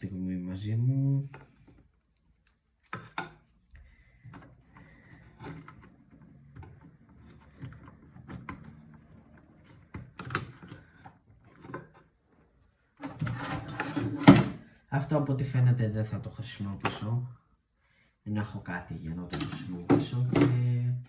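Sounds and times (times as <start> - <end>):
cables and parts clicking and knocking: 1.3 - 12.2, 19.3 - 20.7.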